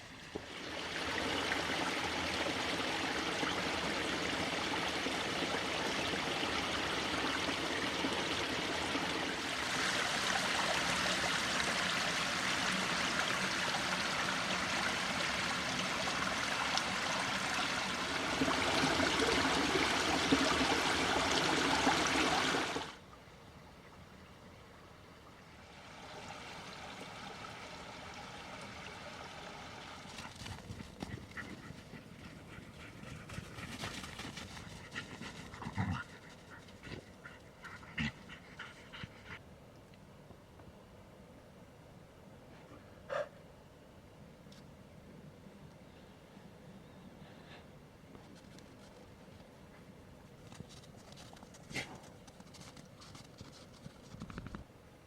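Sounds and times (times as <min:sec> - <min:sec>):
faint background hiss: 0:00.0 - 0:55.0
stream rushing: 0:00.4 - 0:23.0.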